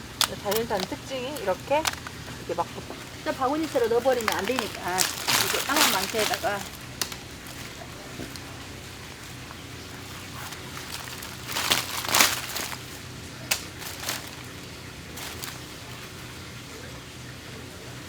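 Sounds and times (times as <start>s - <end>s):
oyster shells rustling and scraping: 0.0s - 16.3s
low steady hum: 0.0s - 18.0s.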